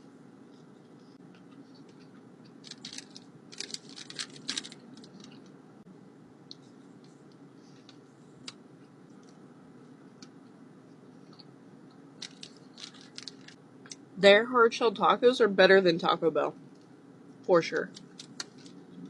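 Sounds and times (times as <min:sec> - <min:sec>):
crisp taco crunching: 0:01.3 - 0:05.5, 0:12.2 - 0:13.6, 0:17.9 - 0:18.8.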